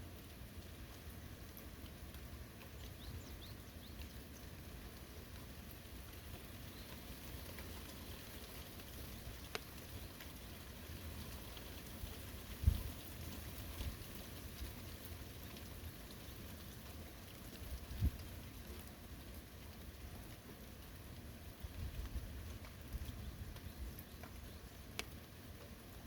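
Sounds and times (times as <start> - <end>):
light rain on forest: 0.0 - 26.0.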